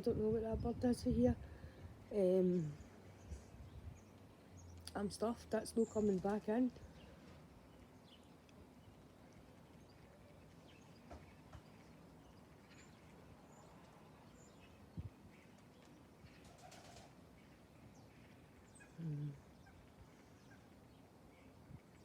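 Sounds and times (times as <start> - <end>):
pigeon cooing: 18.8 - 19.8.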